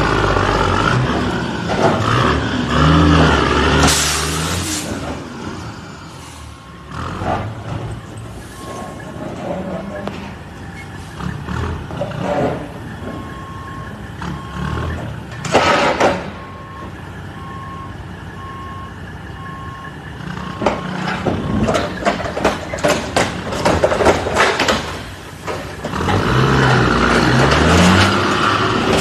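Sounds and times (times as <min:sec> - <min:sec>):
vehicle running noise: 0:00.0 - 0:29.0
sharp knocks and crackles: 0:20.6 - 0:26.3.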